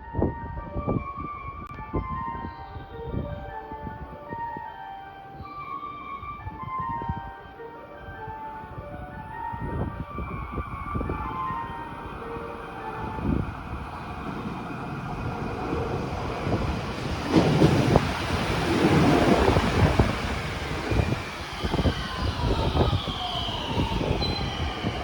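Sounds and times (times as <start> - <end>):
electric train rumbling on rails: 0.0 - 25.0
wind buffeting microphone: 0.0 - 25.0
falling whine: 18.2 - 25.0.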